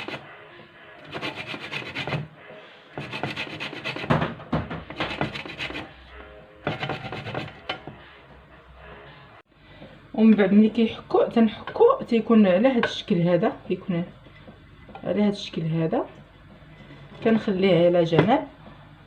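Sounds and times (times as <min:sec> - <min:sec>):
lemon rind rasping on grater: 0:01.1 - 0:02.2.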